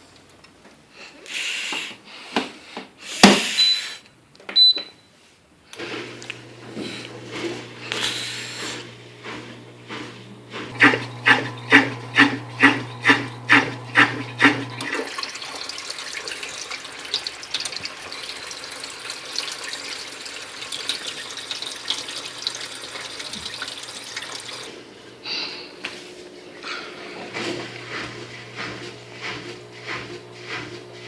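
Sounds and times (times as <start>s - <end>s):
dishwasher pump motor hum: 5.8s - 31.0s
water splashing inside tub: 10.6s - 24.8s
water gurgling in pulses: 10.7s - 24.7s.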